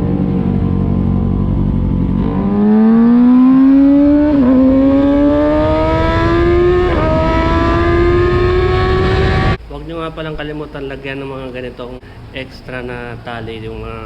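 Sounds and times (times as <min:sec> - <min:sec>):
motorcycle engine accelerating: 0:00.0 - 0:09.6.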